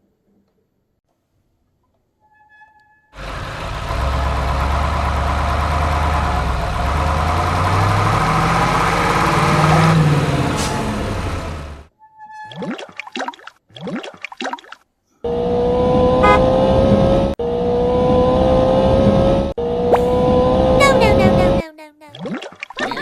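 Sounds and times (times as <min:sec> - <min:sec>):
heavy truck engine revving: 0:03.2 - 0:11.9.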